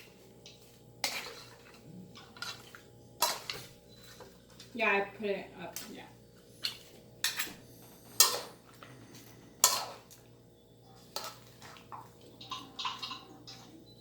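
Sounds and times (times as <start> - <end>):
metal utensil clanking against pot: 12.4 - 13.7.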